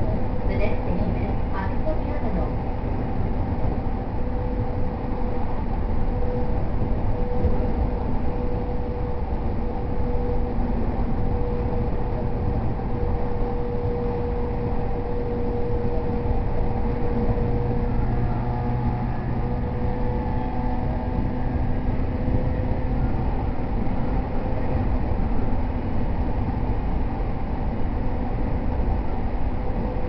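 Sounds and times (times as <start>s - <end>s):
steady train hum: 0.0s - 30.0s
train wheels rumbling on rails: 0.0s - 30.0s.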